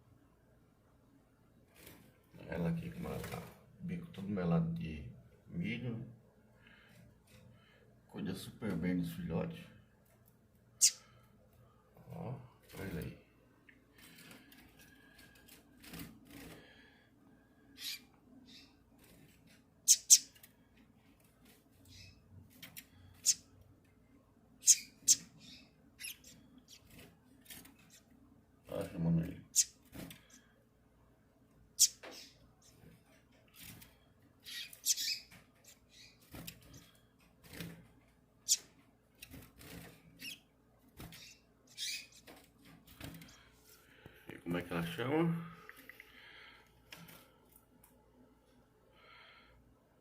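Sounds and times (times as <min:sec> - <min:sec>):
bird high-pitched calls: 0:10.8 - 0:11.1, 0:17.7 - 0:18.8, 0:19.9 - 0:20.3, 0:21.9 - 0:22.2, 0:24.6 - 0:26.8, 0:29.5 - 0:29.8, 0:31.8 - 0:32.8, 0:34.4 - 0:36.2, 0:38.5 - 0:38.7, 0:40.2 - 0:40.4, 0:41.1 - 0:42.2.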